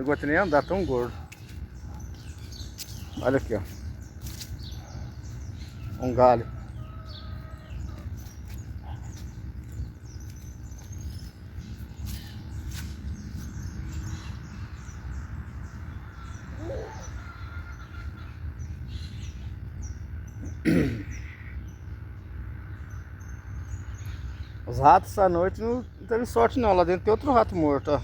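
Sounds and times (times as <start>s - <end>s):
birds chirping and twittering: 0.0s - 28.0s
loud full bird call: 0.0s - 28.0s
steady low rumble: 0.0s - 28.0s
low bird call: 16.0s - 19.6s.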